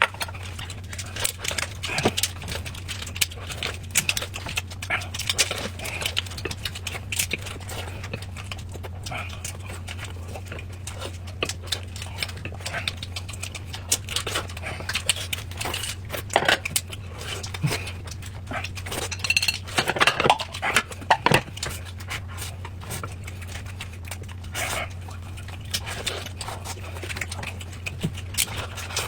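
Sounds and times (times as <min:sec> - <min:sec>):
chewing and mouth noises: 0:00.0 - 0:29.0
dishes and chopsticks clinking: 0:19.0 - 0:21.5.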